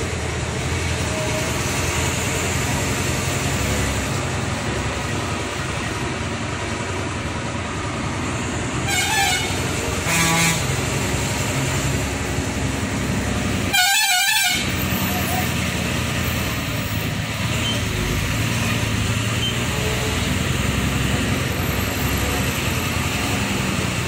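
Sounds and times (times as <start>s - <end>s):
truck engine and road noise: 0.0s - 24.0s
vehicle horn honking: 8.8s - 10.7s, 13.7s - 14.7s.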